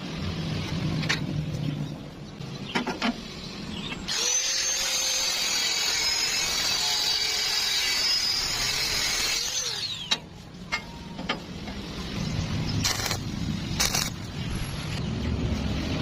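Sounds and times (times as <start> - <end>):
power tool whining: 4.1 - 10.2.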